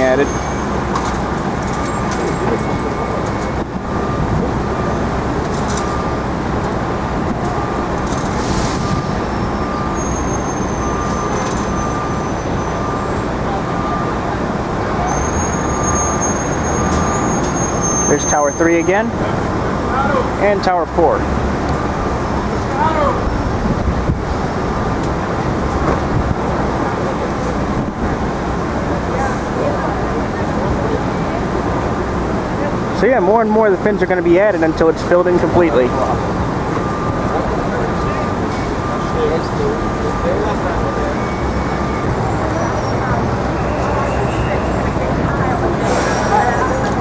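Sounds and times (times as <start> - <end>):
city street traffic: 0.0 - 47.0
faint beeps: 1.6 - 6.4, 7.4 - 14.4, 34.2 - 47.0
wind rumbling on microphone: 6.4 - 10.0, 23.2 - 26.9.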